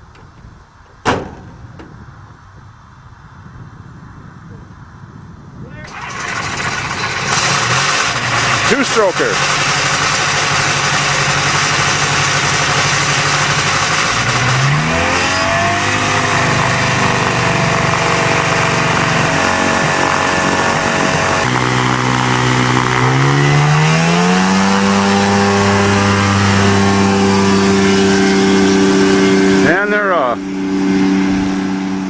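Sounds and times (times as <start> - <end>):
small airplane engine running up: 5.8 - 32.0.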